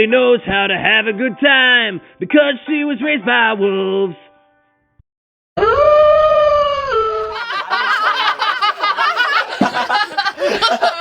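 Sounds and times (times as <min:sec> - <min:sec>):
people chattering and laughing: 0:07.2 - 0:11.0.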